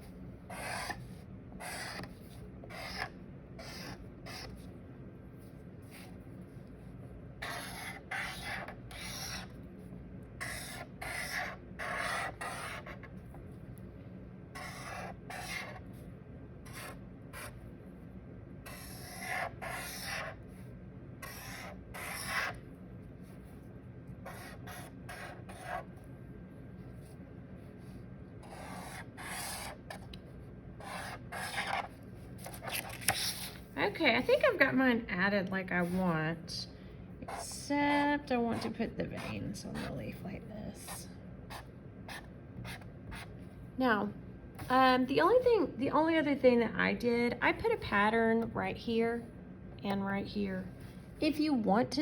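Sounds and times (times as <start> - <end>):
pen scratching on paper: 0.5 - 4.6, 7.4 - 9.5, 10.4 - 13.2, 14.6 - 15.9, 16.6 - 17.6, 18.7 - 20.4, 21.2 - 22.6, 24.2 - 25.9, 28.4 - 30.1, 30.8 - 33.6, 37.2 - 37.6, 38.5 - 40.0.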